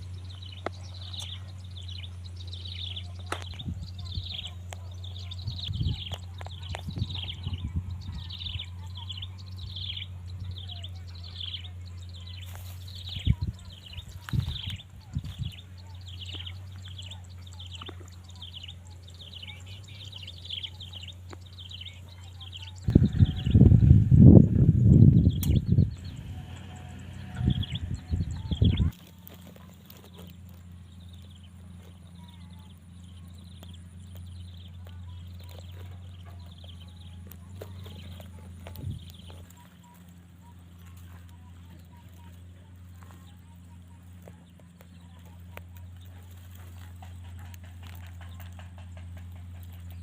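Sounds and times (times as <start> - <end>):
birds chirping: 0.0 - 50.0
steady low hum: 0.0 - 50.0
sharp clicks: 25.3 - 26.1.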